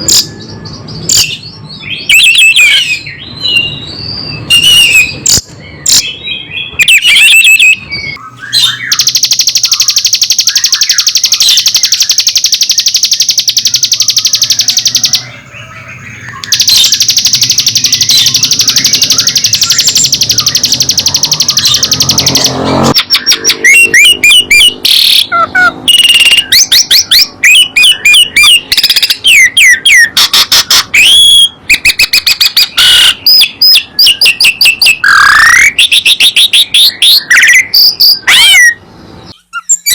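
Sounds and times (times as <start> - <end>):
bird whistled notes and chirps: 0.0 - 39.9
songbird buzzing trill: 8.9 - 15.4, 16.4 - 23.0.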